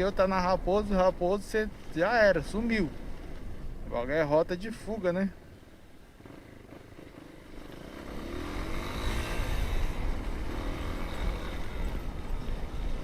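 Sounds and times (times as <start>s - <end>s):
motorcycle engine accelerating: 6.1s - 13.0s
wind rumble on microphone: 8.7s - 13.0s.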